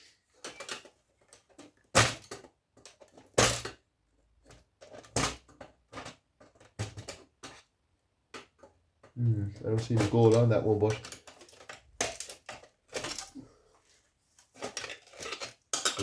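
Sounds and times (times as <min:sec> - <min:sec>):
electronic parts clattering: 0:00.3 - 0:03.8, 0:04.4 - 0:13.6, 0:14.4 - 0:16.0.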